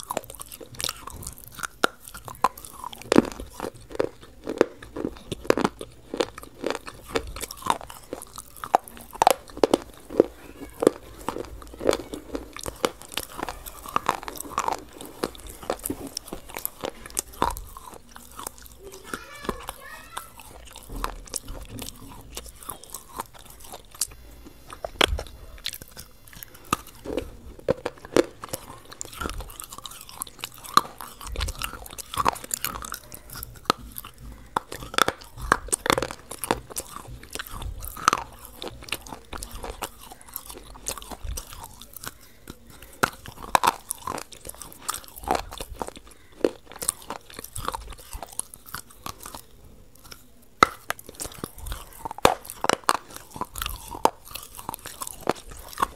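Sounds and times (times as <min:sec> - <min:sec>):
biting and chewing ice cream: 0:00.0 - 0:55.9.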